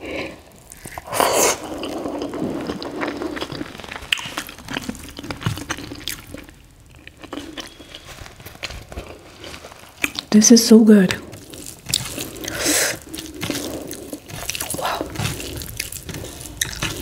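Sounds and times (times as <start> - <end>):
wet chewing: 0.6 - 10.4, 11.0 - 17.0
fingers mixing rice on plate: 11.2 - 17.0.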